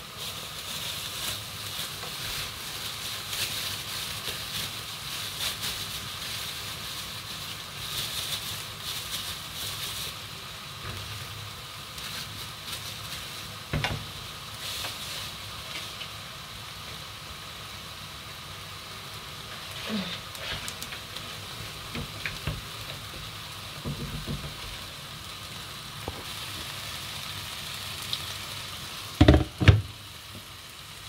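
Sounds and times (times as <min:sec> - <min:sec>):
greens shaken from plastic bag: 0:00.0 - 0:13.7, 0:14.3 - 0:16.0
prawns sizzling in hot oil: 0:00.0 - 0:31.0.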